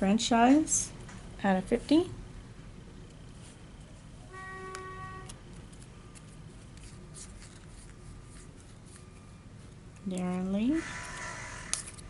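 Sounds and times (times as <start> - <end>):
low steady hum: 0.0 - 12.0
cards clicking and rustling: 4.7 - 12.0.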